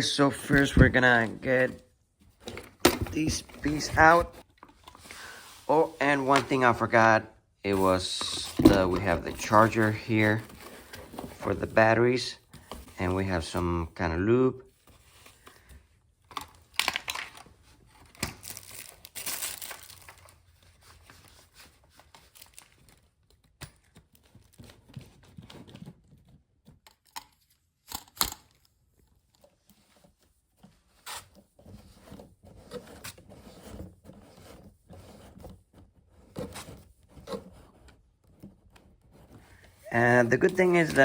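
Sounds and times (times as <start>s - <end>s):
plastic packaging crinkling and tearing: 18.1s - 20.5s, 22.0s - 23.4s.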